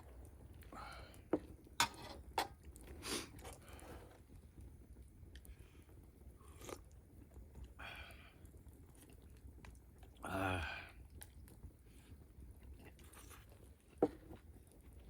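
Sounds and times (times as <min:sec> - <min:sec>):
chewing and mouth noises: 0:02.5 - 0:07.8, 0:08.4 - 0:10.2, 0:10.9 - 0:15.0.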